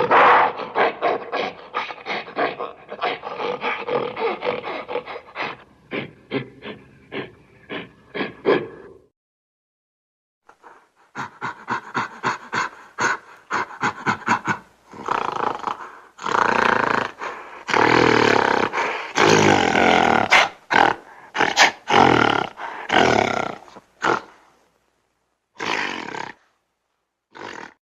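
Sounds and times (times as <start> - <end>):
gorilla roaring and grunting: 0.0 - 9.1, 11.2 - 24.4, 25.6 - 26.4, 27.3 - 27.8.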